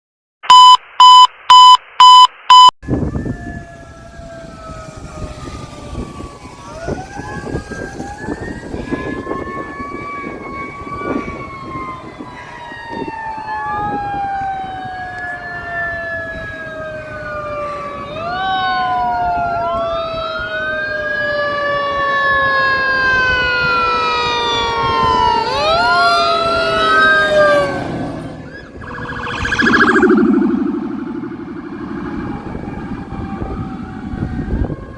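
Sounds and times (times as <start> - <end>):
short beeps: 0.4 - 2.8, 28.8 - 32.0
fire engine sirens wailing: 2.8 - 34.9.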